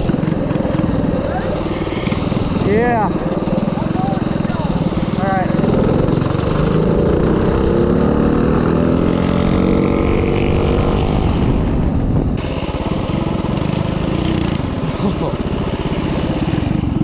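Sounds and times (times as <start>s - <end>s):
minibike engine running: 0.0s - 8.0s, 12.4s - 17.0s.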